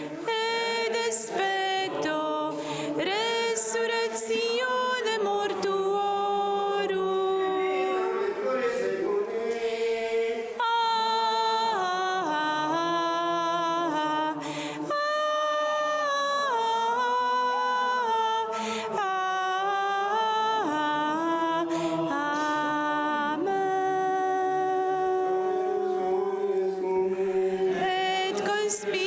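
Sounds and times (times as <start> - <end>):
breaths between phrases: 2.5 - 3.0, 14.4 - 14.8, 18.5 - 19.0, 21.7 - 22.0.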